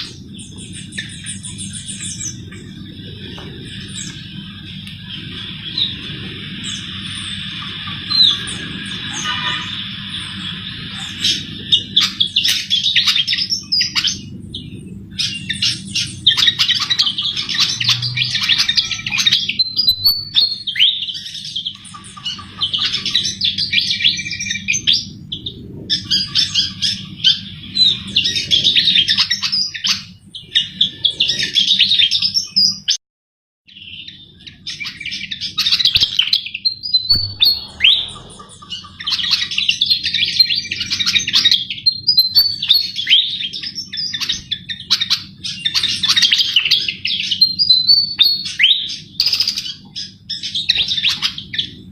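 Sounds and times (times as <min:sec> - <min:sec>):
steady low hum: 0:00.0 - 0:32.0, 0:34.1 - 0:42.6
bird twittering song: 0:00.0 - 0:33.0, 0:33.7 - 0:51.9.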